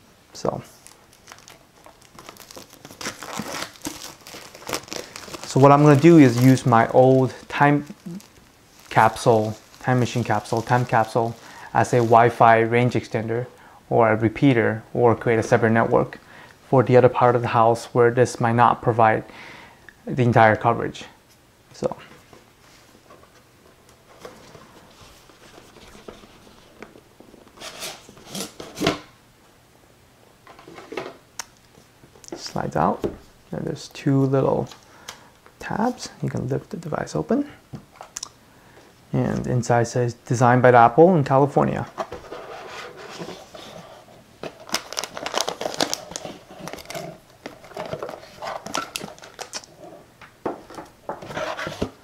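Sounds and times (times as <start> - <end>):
packaging crinkling and rustling: 0.7 - 12.6, 41.8 - 52.0.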